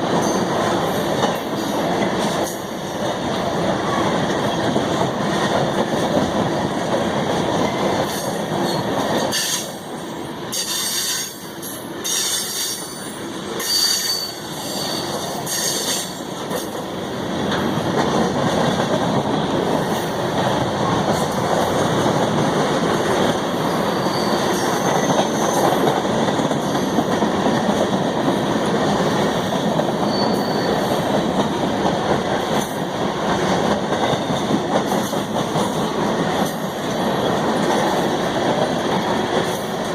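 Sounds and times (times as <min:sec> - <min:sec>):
train cars rolling on rails: 0:00.0 - 0:39.9
train wheel squeals: 0:08.1 - 0:09.8, 0:10.5 - 0:16.7, 0:23.5 - 0:25.9, 0:29.9 - 0:31.1.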